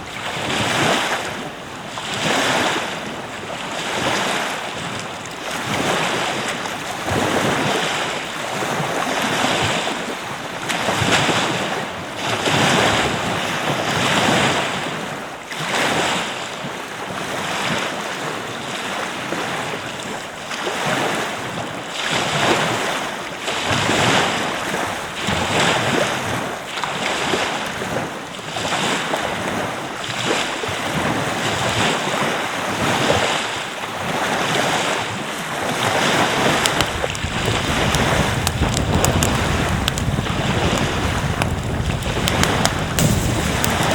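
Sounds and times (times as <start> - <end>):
wind buffeting microphone: 0.0 - 16.1, 34.0 - 43.9
surf washing onto beach: 0.0 - 43.9.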